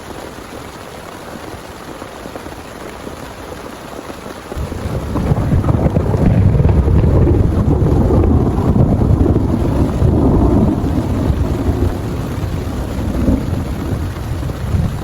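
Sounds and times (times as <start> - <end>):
heavy rain: 0.0 - 15.0
thunder rumbling: 4.5 - 15.0.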